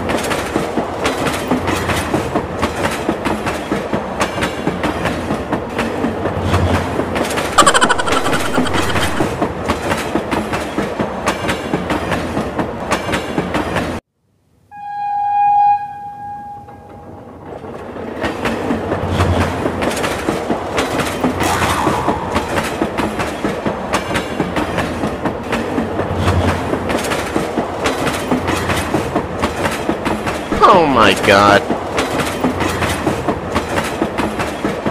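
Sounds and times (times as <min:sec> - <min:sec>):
mini train clattering on track: 0:00.0 - 0:07.6, 0:09.3 - 0:14.0, 0:16.8 - 0:21.5, 0:22.4 - 0:30.5, 0:31.4 - 0:34.9
train horn toot: 0:14.7 - 0:17.0.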